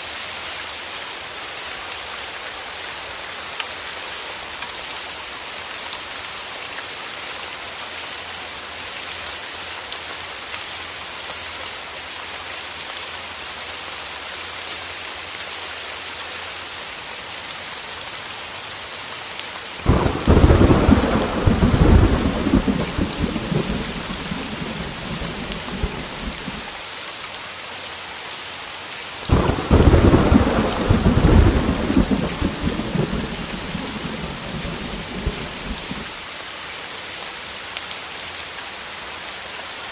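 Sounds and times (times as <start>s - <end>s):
heavy rain hissing: 14.5s - 36.6s
thunder claps rumbling: 19.9s - 26.7s, 29.3s - 36.1s.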